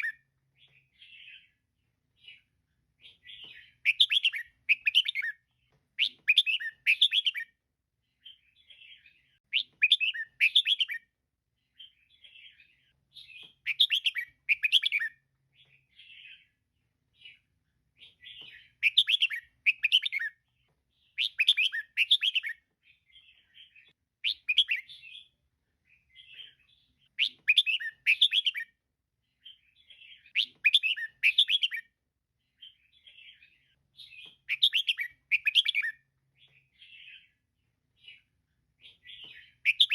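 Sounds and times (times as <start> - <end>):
bird chattering chirps: 38.9 - 39.9.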